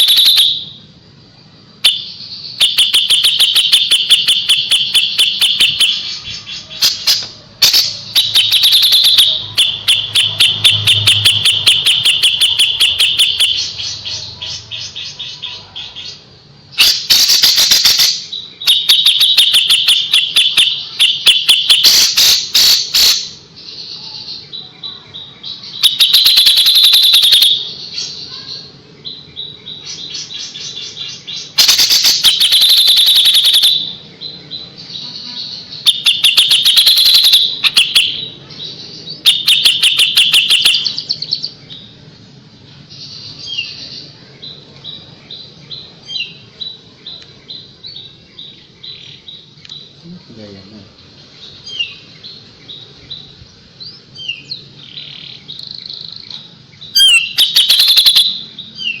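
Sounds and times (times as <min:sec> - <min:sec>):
songbird singing sharp high notes: 0:00.0 - 0:00.9, 0:01.8 - 0:14.7, 0:16.7 - 0:23.4, 0:25.7 - 0:28.4, 0:29.9 - 0:34.1, 0:35.6 - 0:38.4, 0:39.1 - 0:41.6, 0:56.9 - 0:59.0
soft bird twittering: 0:00.0 - 0:59.0.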